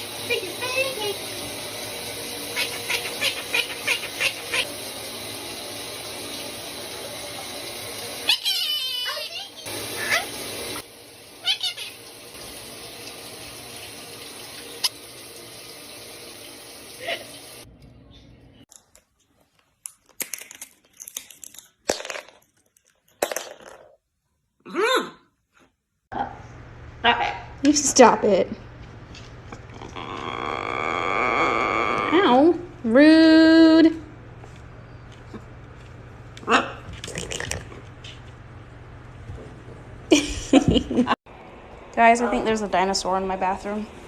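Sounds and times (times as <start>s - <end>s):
running water: 0.0s - 17.7s
parrot calling: 2.4s - 4.7s, 8.2s - 10.4s, 11.4s - 12.1s, 29.7s - 32.5s, 36.4s - 36.9s.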